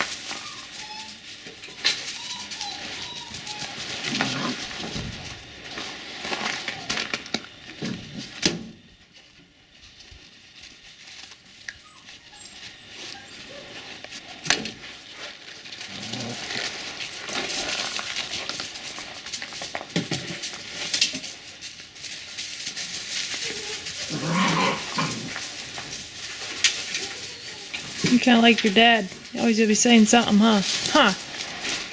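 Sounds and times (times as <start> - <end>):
puppies whining and yipping: 0.0 - 5.0, 11.6 - 14.0, 23.3 - 31.2
small knocks and scuffling: 0.0 - 31.9.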